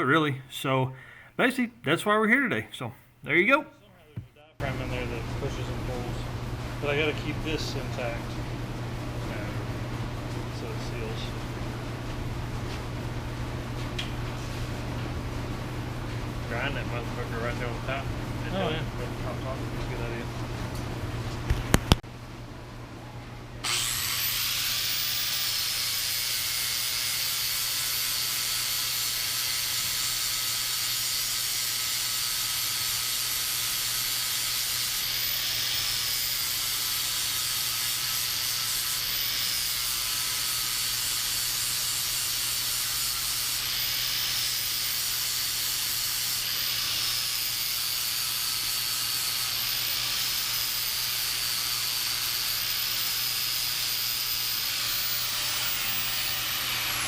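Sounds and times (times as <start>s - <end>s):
die grinder whining: 23.6s - 57.0s.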